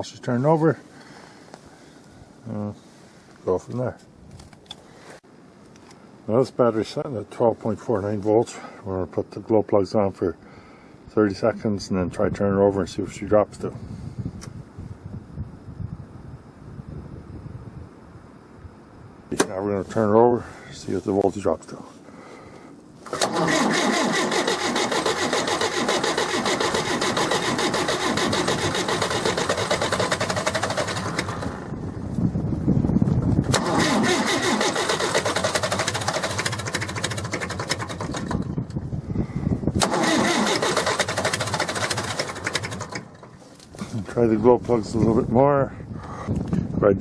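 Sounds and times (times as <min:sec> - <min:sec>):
diesel engine cranking: 0:23.0 - 0:31.8, 0:33.4 - 0:38.8, 0:39.7 - 0:44.2.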